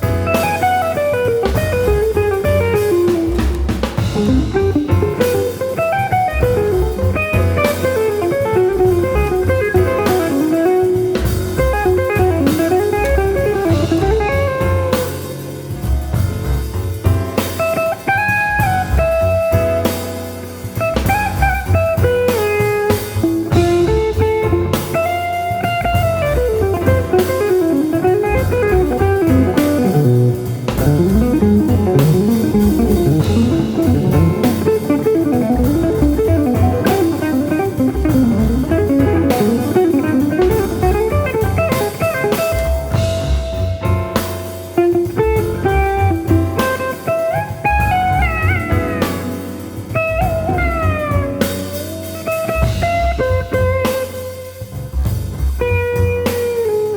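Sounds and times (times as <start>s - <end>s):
drum kit: 0.0s - 56.9s
jazz guitar melody: 0.0s - 56.9s.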